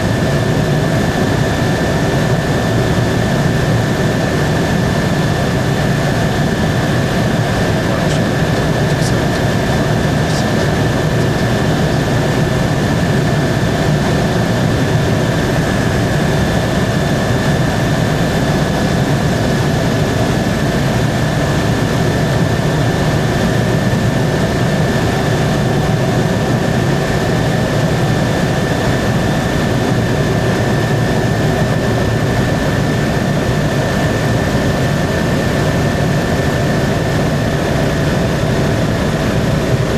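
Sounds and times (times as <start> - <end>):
high whine: 0.0 - 33.3
helicopter engine and rotor noise: 0.0 - 39.9.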